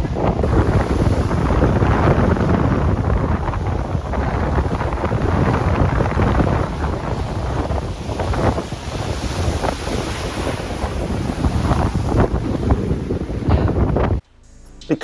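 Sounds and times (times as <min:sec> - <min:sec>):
wind buffeting microphone: 0:00.0 - 0:14.2.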